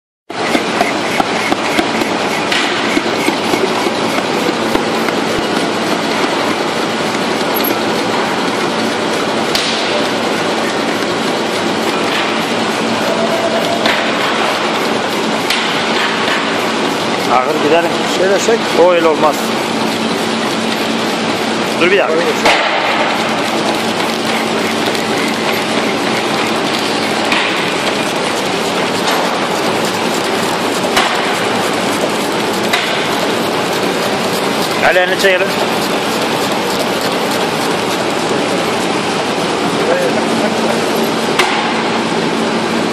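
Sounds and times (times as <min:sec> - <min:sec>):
sharp machine clicks: 0:23.4 - 0:38.3.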